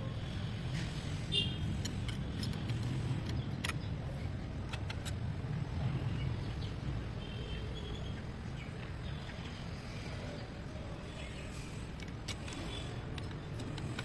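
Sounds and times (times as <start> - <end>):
sharp clicks: 1.6 - 3.9, 4.5 - 5.3.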